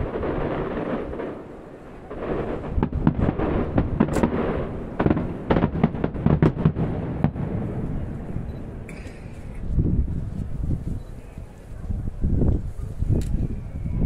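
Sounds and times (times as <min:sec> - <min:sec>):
firework bangs and cracks: 0:00.0 - 0:10.8
low rumble: 0:00.0 - 0:11.1.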